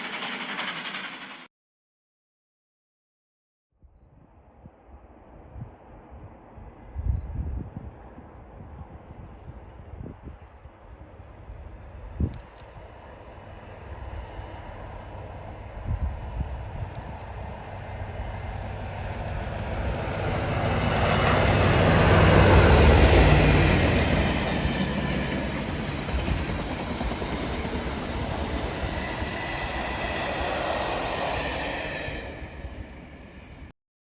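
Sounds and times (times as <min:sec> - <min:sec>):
diesel locomotives passing: 0:00.0 - 0:01.5, 0:12.8 - 0:33.7.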